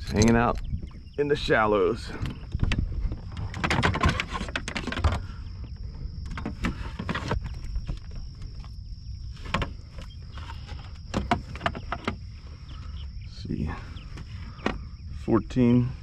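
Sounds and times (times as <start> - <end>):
gear clicks and knocks on kayak: 0.0 - 0.8, 2.2 - 5.6, 6.2 - 8.8, 9.4 - 12.3
wind rumble on microphone: 0.0 - 16.0.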